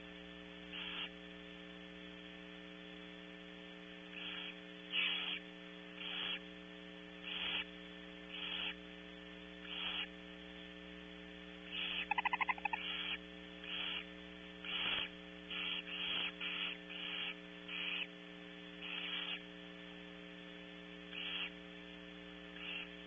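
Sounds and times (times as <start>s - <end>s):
electrical hum: 0.0s - 23.0s
owls hissing: 11.7s - 14.0s.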